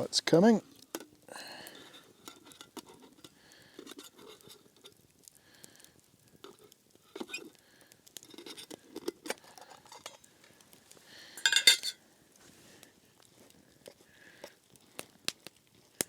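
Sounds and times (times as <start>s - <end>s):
metal pot and utensils clinking: 1.7s - 4.9s, 6.5s - 7.5s, 8.2s - 10.2s, 11.4s - 12.0s
ringing metal clatter: 11.4s - 12.0s.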